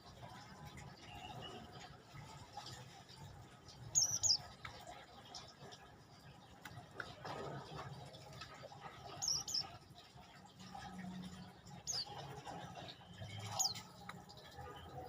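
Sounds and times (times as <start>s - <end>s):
songbird chirping: 3.8s - 5.0s, 9.1s - 9.8s.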